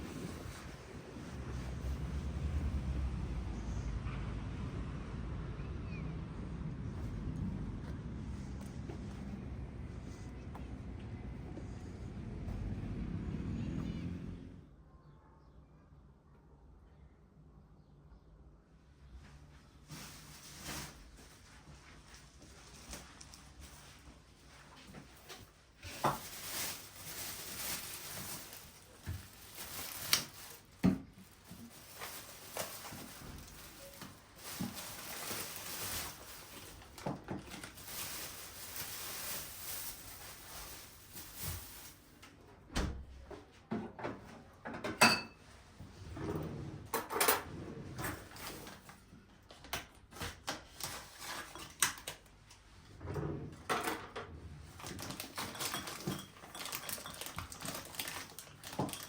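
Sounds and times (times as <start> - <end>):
dishes and utensils clinking: 44.8 - 45.4, 55.3 - 58.1.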